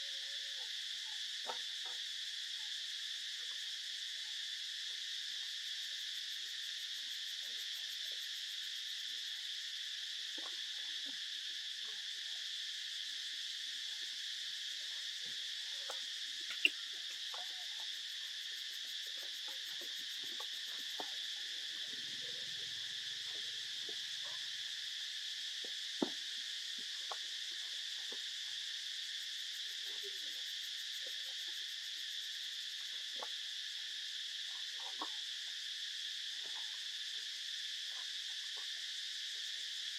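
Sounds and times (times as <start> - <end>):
high-pitched insect chorus: 0.0 - 39.9
faint ticks: 15.8 - 18.0.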